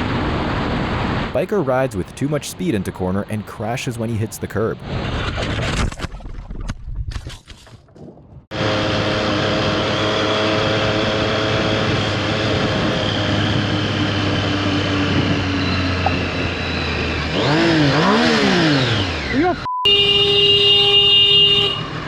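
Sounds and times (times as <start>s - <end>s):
motorcycle engine revving: 8.5s - 20.2s.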